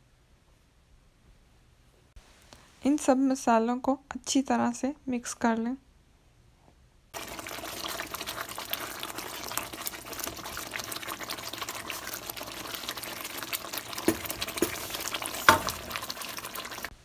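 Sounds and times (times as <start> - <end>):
masala sizzling in hot oil: 7.2 - 17.0
spoon knock: 14.0 - 15.9.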